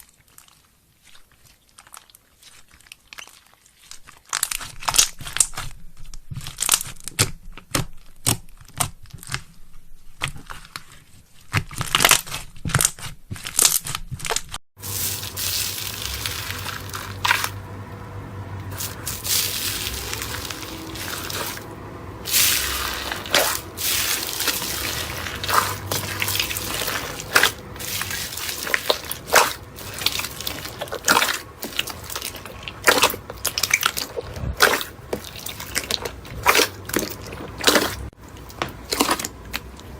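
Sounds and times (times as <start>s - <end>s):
low hum: 14.8s - 38.1s
slime squishing and popping: 22.2s - 39.7s.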